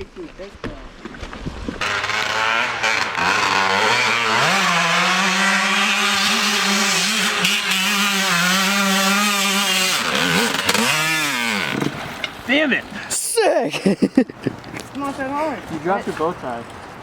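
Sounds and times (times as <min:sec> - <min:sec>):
dirt bike engine revving: 0:01.8 - 0:12.4.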